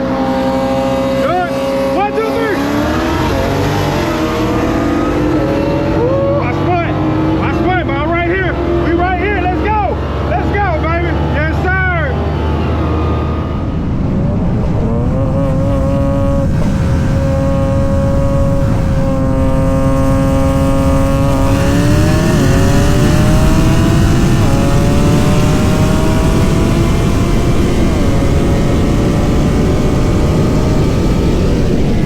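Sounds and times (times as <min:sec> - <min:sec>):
car engine accelerating: 0:00.0 - 0:32.0.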